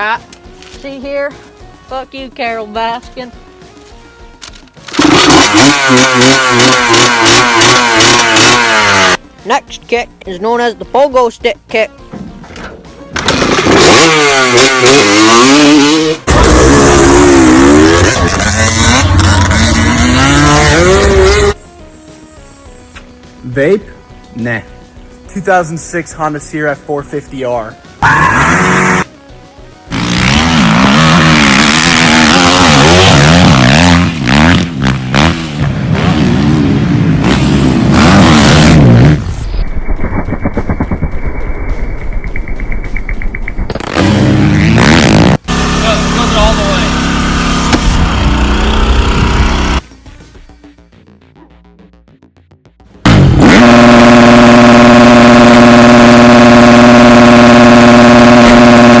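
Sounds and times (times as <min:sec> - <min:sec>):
dirt bike engine revving: 0:04.9 - 0:09.2, 0:13.1 - 0:21.6, 0:28.1 - 0:29.1, 0:29.9 - 0:49.8, 0:53.0 - 0:59.0
rapidly pulsing engine: 0:04.9 - 0:09.2, 0:13.2 - 0:21.6, 0:37.0 - 0:49.8, 0:53.1 - 0:59.0.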